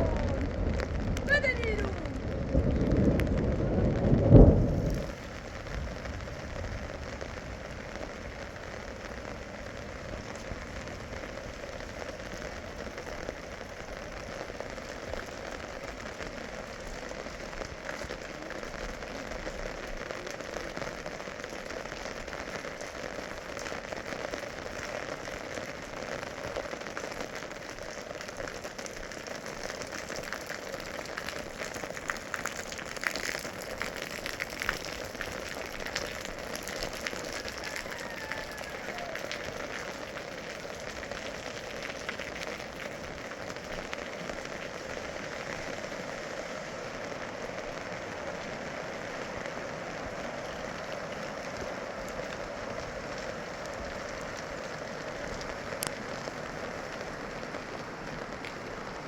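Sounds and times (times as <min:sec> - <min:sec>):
heavy rain falling: 0:00.0 - 0:59.0
loud low thump: 0:04.0 - 0:05.2.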